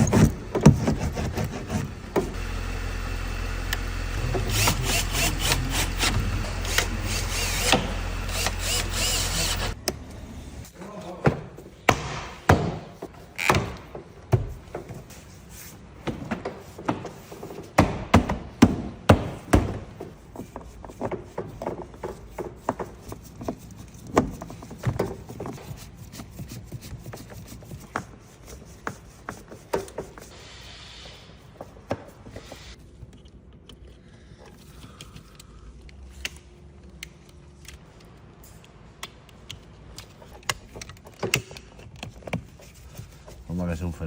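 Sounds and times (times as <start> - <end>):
tools knocking on car panels: 17.8 - 20.1
brief hiss: 30.3 - 31.4.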